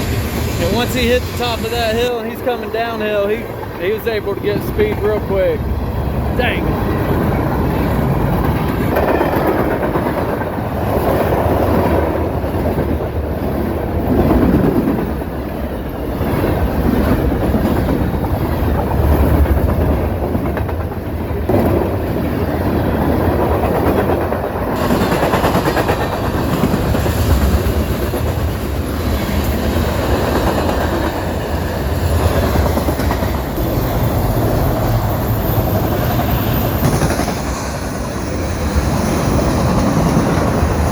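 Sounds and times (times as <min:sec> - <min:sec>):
freight train cars rolling on rails: 0:00.0 - 0:40.9.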